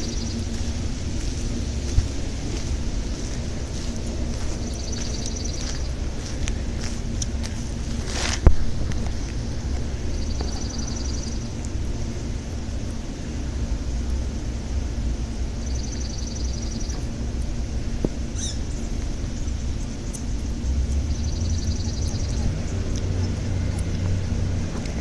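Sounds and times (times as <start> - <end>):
bird chirp: 0.0 - 0.8, 4.3 - 6.4, 9.1 - 11.6, 15.6 - 17.2, 18.3 - 24.4
low rumble: 0.0 - 25.0
small bird trilling: 18.4 - 18.8.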